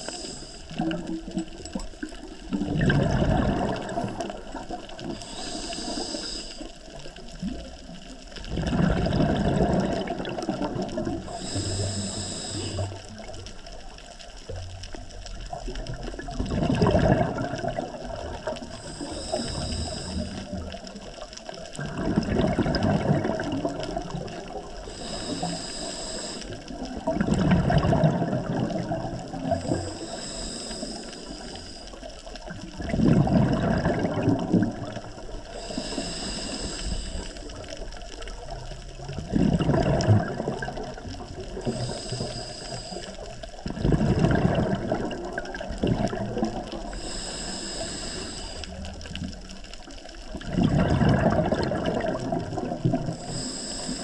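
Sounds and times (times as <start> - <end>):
regulator hissing on inhale: 0.0 - 1.1, 3.7 - 7.1, 11.2 - 13.4, 18.0 - 21.6, 23.4 - 27.1, 29.3 - 32.6, 34.6 - 38.6, 40.7 - 43.6, 46.7 - 50.2, 52.9 - 54.0
exhaled bubbles rushing underwater: 0.0 - 54.0.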